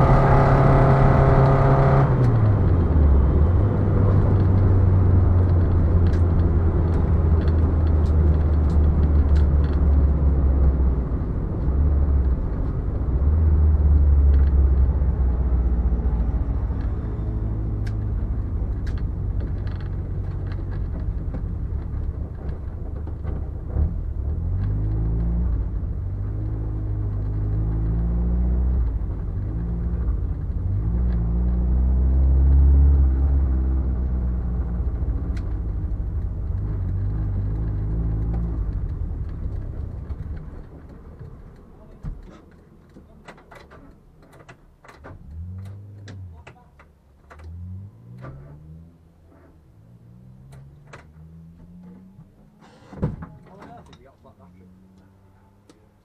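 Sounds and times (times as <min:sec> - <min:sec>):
engine revs rising and falling: 0:00.0 - 0:03.9
car driving low rumble: 0:00.0 - 0:56.0.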